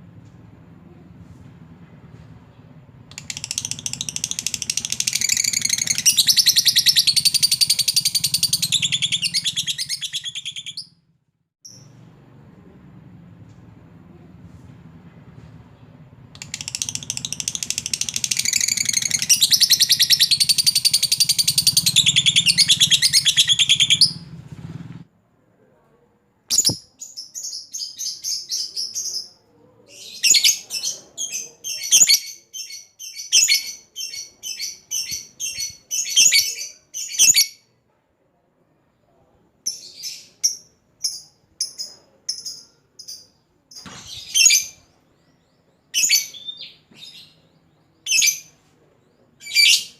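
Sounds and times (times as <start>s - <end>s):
lovebird chattering trill: 3.1s - 10.9s, 16.4s - 24.2s
rapid high bird chirps: 3.1s - 11.0s, 16.4s - 24.3s, 26.5s - 29.4s, 30.0s - 37.5s.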